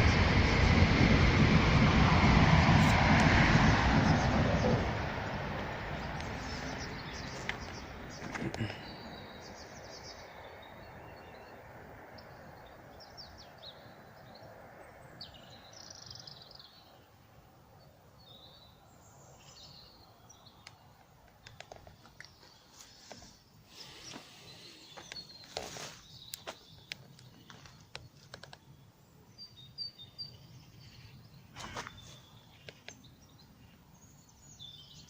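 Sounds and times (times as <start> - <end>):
low background rumble: 0.0 - 15.9
songbirds chirping: 0.0 - 35.0
sharp clicks: 20.6 - 22.4.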